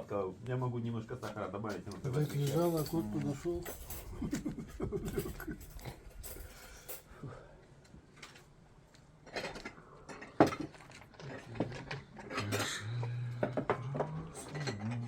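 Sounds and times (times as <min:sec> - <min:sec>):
dishes and cutlery clinking: 0:02.0 - 0:07.1, 0:09.3 - 0:15.0.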